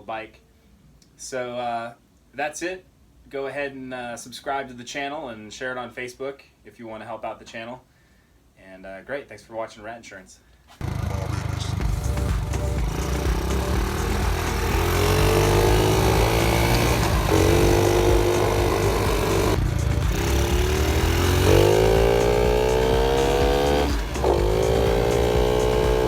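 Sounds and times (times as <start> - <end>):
small motorbike engine revving: 10.8 - 26.0.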